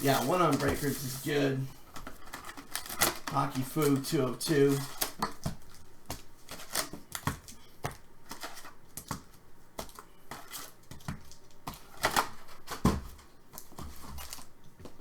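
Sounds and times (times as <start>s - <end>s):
foil wrappers crinkling and tearing: 0.0s - 8.8s, 9.9s - 14.6s
rustle of cards: 0.0s - 9.2s.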